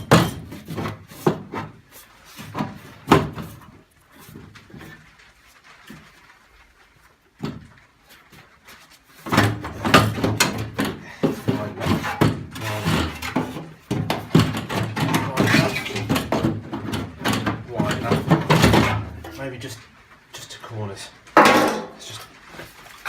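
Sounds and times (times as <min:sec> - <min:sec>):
metal clunks and rattles: 0:00.0 - 0:05.1, 0:07.4 - 0:19.9, 0:21.2 - 0:23.0.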